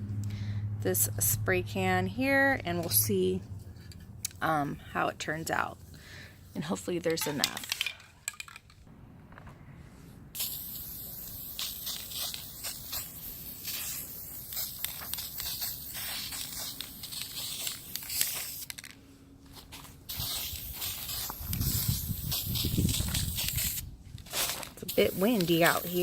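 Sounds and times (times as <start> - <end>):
spray paint can hissing: 10.4 - 18.9, 20.1 - 26.0
wind on microphone: 20.5 - 24.3.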